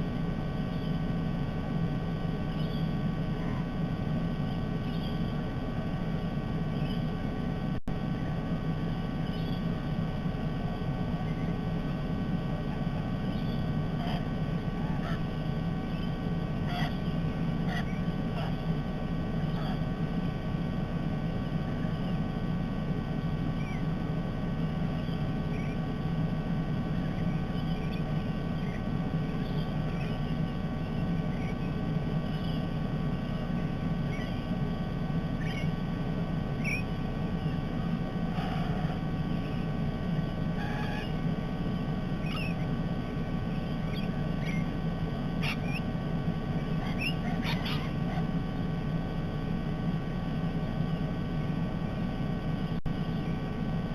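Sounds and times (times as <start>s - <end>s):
parrots chirping and squawking: 12.7s - 20.0s, 23.5s - 24.0s, 26.8s - 35.9s, 36.6s - 48.5s.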